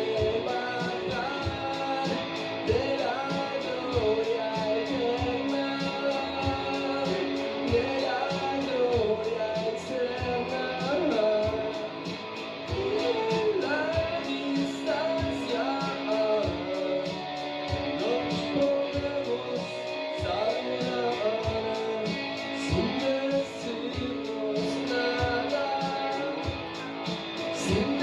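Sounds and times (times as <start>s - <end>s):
guitar: 0.0s - 28.0s
person singing lead vocal: 0.0s - 28.0s
steady drum beat: 0.0s - 28.0s.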